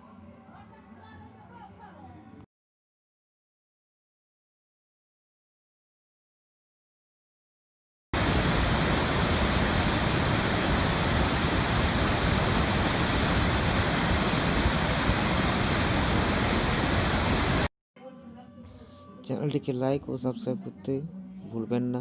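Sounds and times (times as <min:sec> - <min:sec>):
waterfall rushing: 0:08.2 - 0:17.7.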